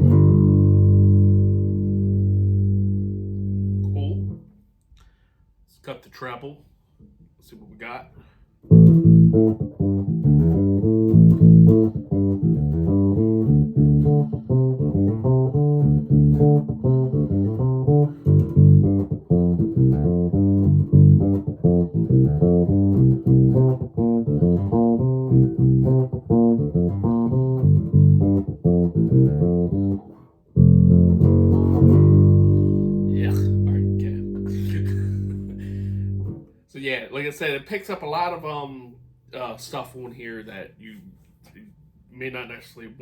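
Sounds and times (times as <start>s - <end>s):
electric bass plucked notes: 0.0s - 4.5s, 8.7s - 36.4s.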